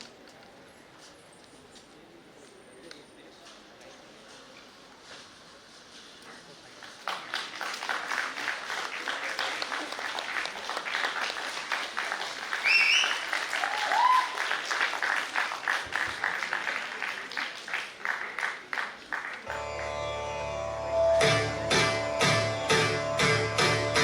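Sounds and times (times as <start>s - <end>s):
audience applauding: 6.8s - 20.0s.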